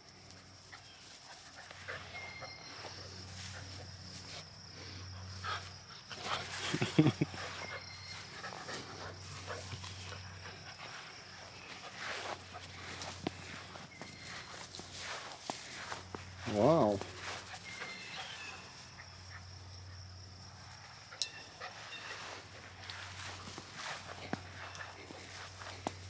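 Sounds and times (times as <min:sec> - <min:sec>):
dog panting: 0:04.8 - 0:13.8.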